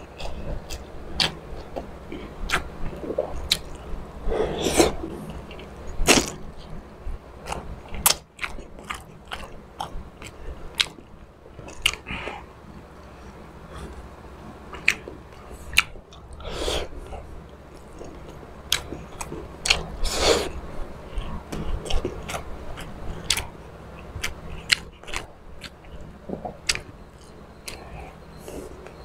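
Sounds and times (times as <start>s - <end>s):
chewing with wet smacks: 0.0s - 6.8s, 7.4s - 29.0s
person slurping: 3.0s - 6.3s.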